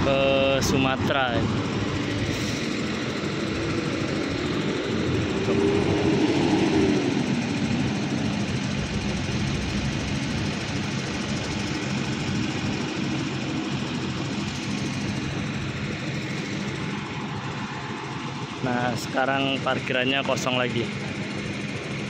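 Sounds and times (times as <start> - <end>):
bus diesel engine pulling out: 0.0 - 11.9.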